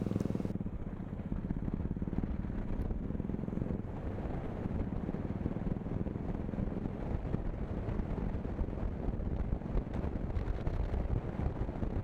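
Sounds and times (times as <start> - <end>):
motorcycle engine running: 0.0 - 0.6.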